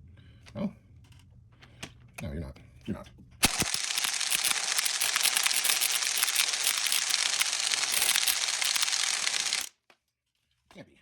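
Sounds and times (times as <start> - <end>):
impact wrench rattling: 3.4 - 9.7.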